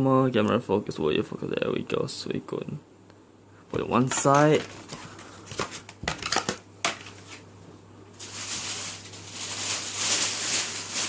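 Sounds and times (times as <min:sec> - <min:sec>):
plastic crinkling and crackling: 0:04.0 - 0:07.4, 0:08.2 - 0:11.0.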